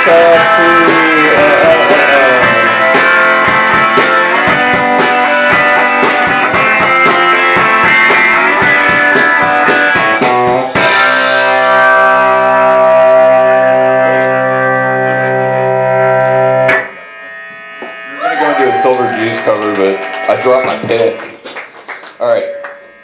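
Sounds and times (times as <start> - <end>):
rapid percussive hits: 0.0 - 11.5, 19.5 - 23.0
guitar chord ringing: 0.0 - 20.8, 22.3 - 23.0
live band instrumental guitar: 0.0 - 23.0.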